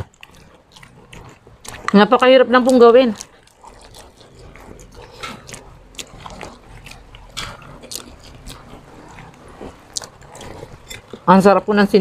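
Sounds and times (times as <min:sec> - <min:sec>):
people chewing food: 0:00.0 - 0:12.0
lip smacks: 0:02.6 - 0:11.3.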